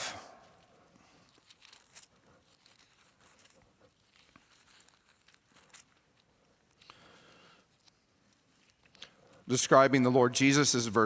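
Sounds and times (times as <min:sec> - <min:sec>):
thin pages rustling and turning: 0:00.5 - 0:06.9.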